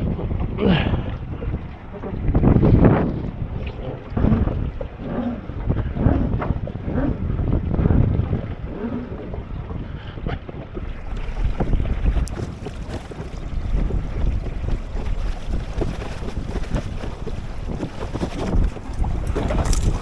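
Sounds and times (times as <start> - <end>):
wind buffeting microphone: 0.0 - 20.0
water slapping against boat: 9.3 - 19.4.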